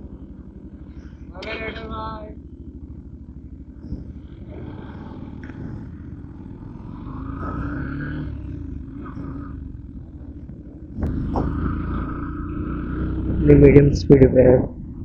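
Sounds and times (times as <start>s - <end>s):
motorbike engine running: 0.0s - 15.0s
wind rushing over microphone: 9.0s - 15.0s.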